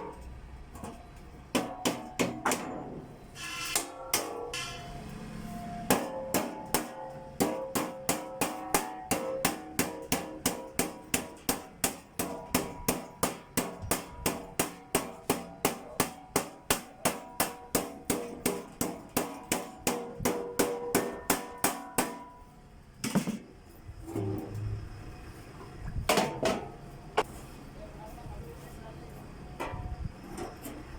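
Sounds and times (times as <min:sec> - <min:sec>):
hammer striking sheet metal: 0:00.8 - 0:04.9, 0:05.9 - 0:22.4.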